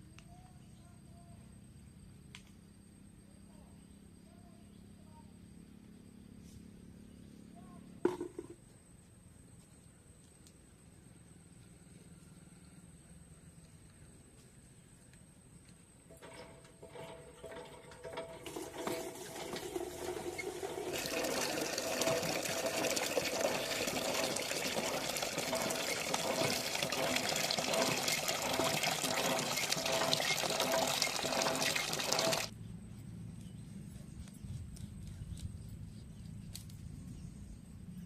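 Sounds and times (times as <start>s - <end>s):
water running and splashing: 18.4s - 32.5s.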